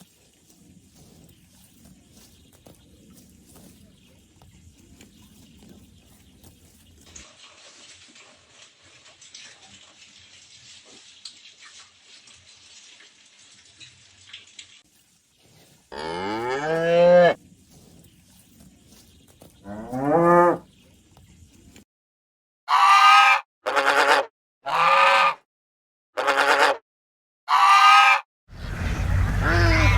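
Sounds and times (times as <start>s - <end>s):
cow mooing: 15.9s - 17.4s, 19.7s - 20.6s, 29.1s - 29.9s.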